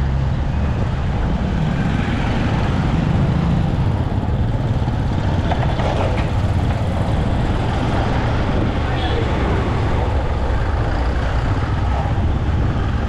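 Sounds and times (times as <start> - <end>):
motorcycle engine drone: 0.0 - 13.0
road and traffic noise: 0.0 - 13.0.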